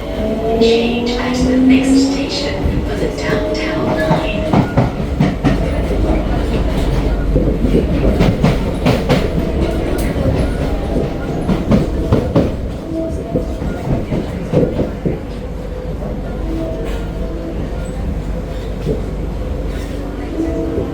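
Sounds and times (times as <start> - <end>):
train rumble inside car: 0.0 - 20.9
wheels clacking on track: 0.0 - 20.9.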